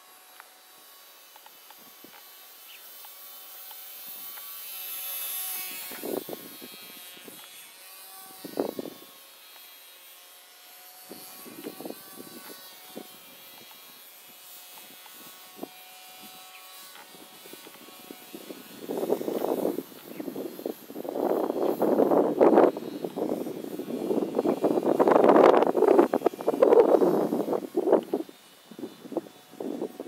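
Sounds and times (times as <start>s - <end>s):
toy plane motor whining: 0.0s - 30.0s.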